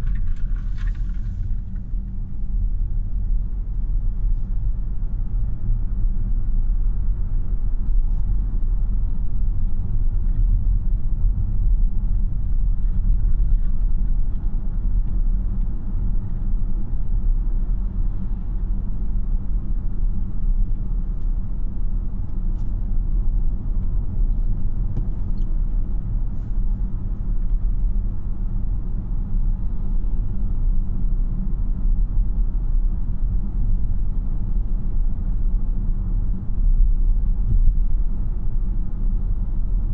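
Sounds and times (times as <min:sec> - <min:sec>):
road and tyre rumble in car: 0:00.0 - 0:39.9.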